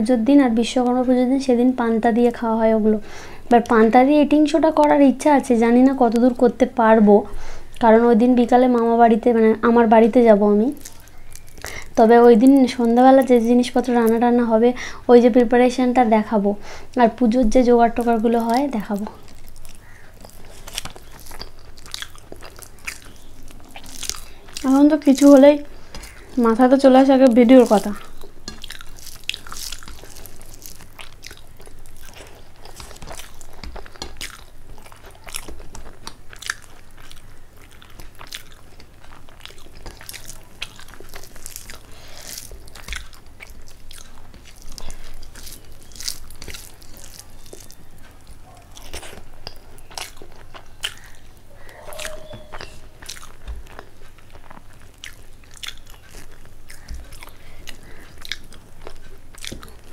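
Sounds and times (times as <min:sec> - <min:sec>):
person chewing and crunching food: 0:02.9 - 0:59.9.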